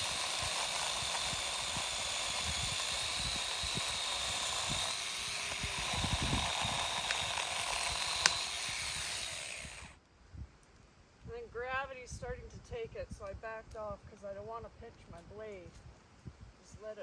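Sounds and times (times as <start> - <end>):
chainsaw cutting branch: 0.0 - 10.0.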